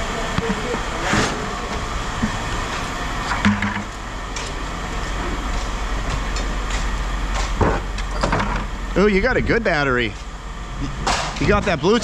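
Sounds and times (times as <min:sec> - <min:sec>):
steady low rumble: 0:00.0 - 0:12.0
sharp knocks: 0:03.4 - 0:04.0.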